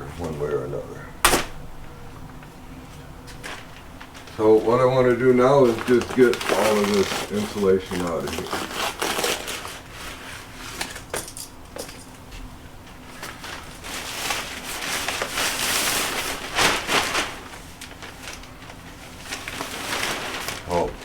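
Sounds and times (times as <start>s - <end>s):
insulation rustling and crinkling: 0.0s - 21.0s
cracks and knocks: 1.2s - 2.6s.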